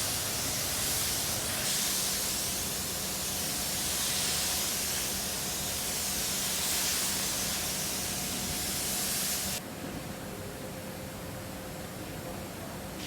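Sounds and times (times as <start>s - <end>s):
paint spray gun hissing: 0.0s - 9.6s.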